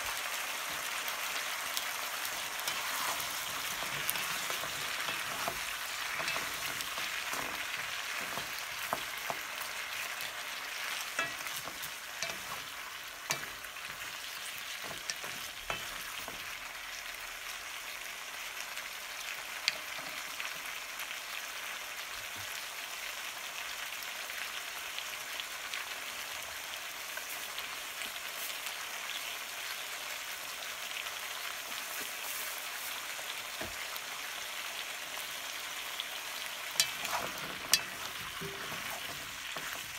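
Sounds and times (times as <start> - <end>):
food sizzling in oil: 0.0 - 39.9
wooden spatulas knocking and scraping: 2.6 - 16.5, 36.8 - 39.9.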